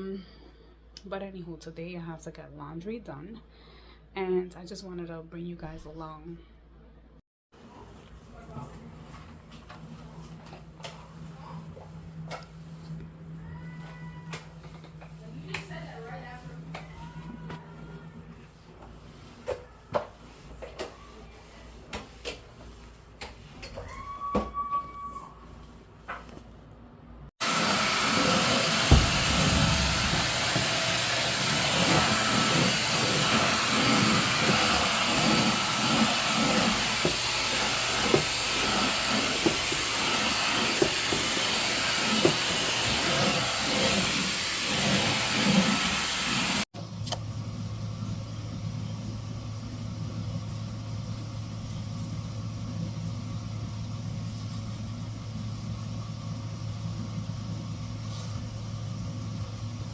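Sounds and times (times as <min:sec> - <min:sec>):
vacuum bumping: 0:27.4 - 0:46.6
vacuum cleaner running: 0:27.4 - 0:46.7
low hum: 0:28.0 - 0:33.8.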